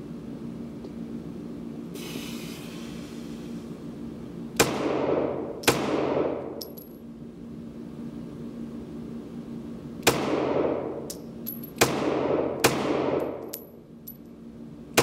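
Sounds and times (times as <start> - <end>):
steady low hum: 0.0 - 15.0
pistol shots echoing: 4.6 - 6.4, 11.8 - 13.4.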